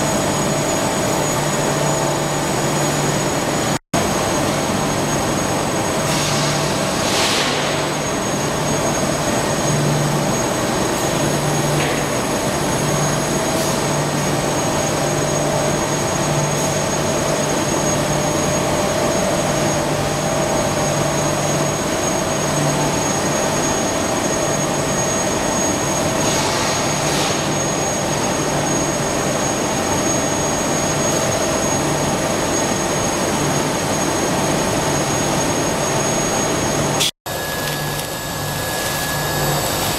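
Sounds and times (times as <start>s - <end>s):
washing machinery running: 0.0s - 39.9s
high steady whine: 27.4s - 39.9s.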